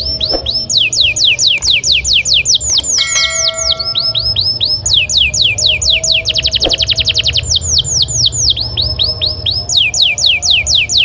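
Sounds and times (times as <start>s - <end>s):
canary singing: 0.1s - 5.6s.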